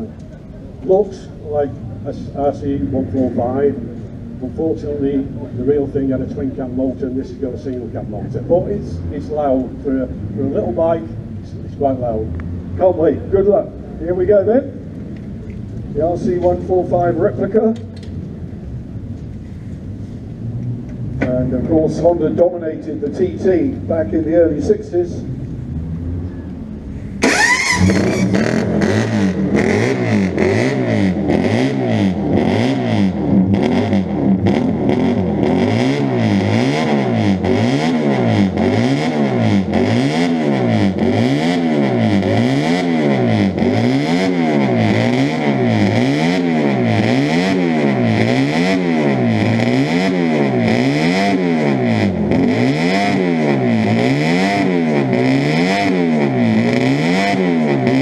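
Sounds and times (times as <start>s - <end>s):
motorcycle engine revving: 27.1s - 58.0s.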